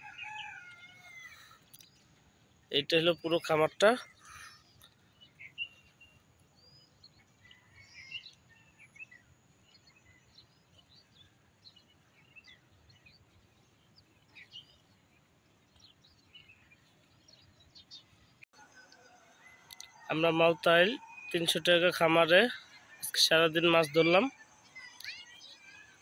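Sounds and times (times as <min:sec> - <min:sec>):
faint bird chirps: 0:02.7 - 0:26.0.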